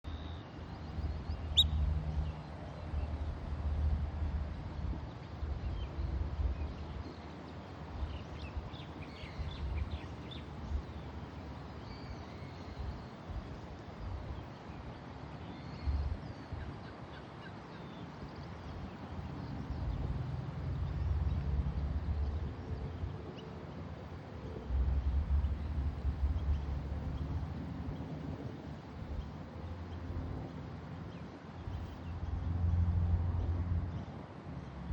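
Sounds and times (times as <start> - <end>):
birds chirping: 0.1 - 2.4.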